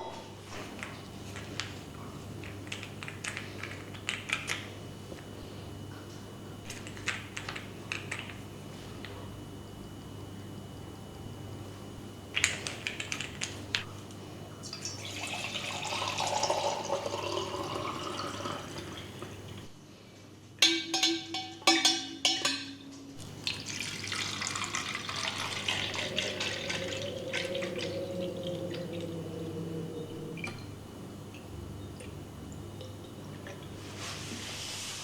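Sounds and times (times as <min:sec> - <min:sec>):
water running from a tap: 0:14.7 - 0:19.6, 0:23.3 - 0:29.1.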